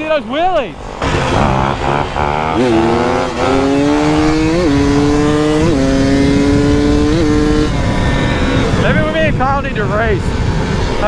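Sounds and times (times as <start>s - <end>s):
dirt bike engine revving: 0.7s - 11.0s.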